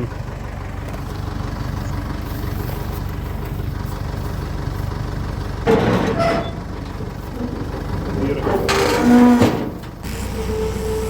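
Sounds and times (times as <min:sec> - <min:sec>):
machine engine idling: 0:00.0 - 0:11.0.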